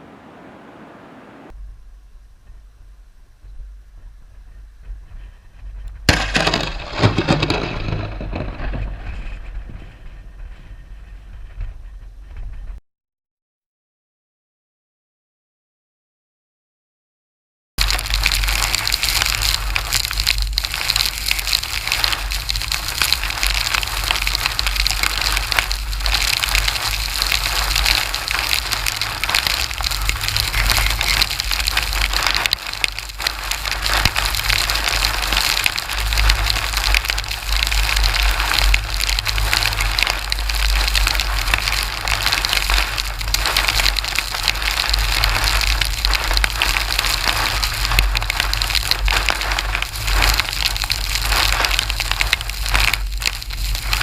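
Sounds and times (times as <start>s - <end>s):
heavy rain hissing: 0.0s - 1.5s, 17.8s - 54.0s
wind rumbling on microphone: 0.0s - 12.8s, 17.8s - 54.0s.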